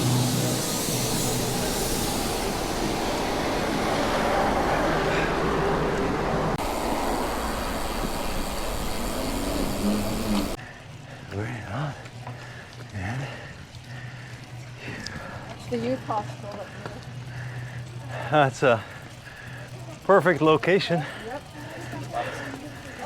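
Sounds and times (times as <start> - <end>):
rushing wind: 0.0 - 11.1
bicycle road noise: 0.0 - 23.0.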